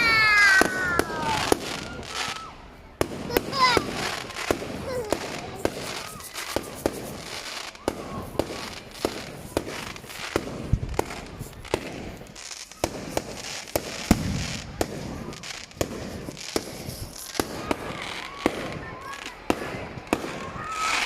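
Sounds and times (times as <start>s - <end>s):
crackling hiss: 0.0s - 21.0s
fireworks bangs and cracks: 0.0s - 21.0s.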